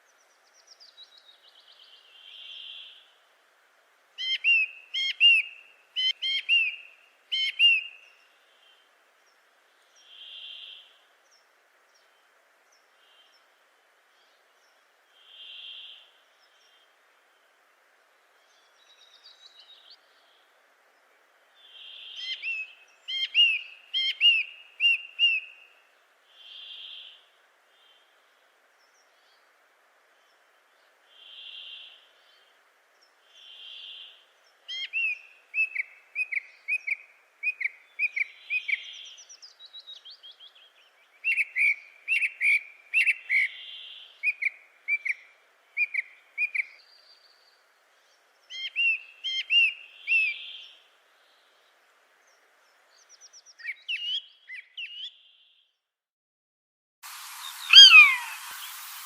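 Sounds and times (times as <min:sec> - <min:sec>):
birds whistling and chirping: 0:48.5 - 0:50.6, 0:53.1 - 0:55.2, 0:57.4 - 0:59.0
hiss with falling whistle: 0:57.0 - 0:59.0.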